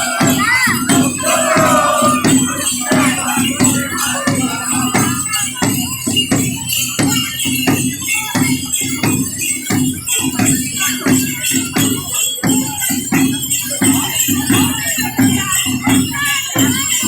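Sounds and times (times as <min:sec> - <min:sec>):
people singing: 0:00.0 - 0:05.6
drums beating: 0:00.0 - 0:16.9
jingling tambourines and rattles: 0:00.0 - 0:17.0.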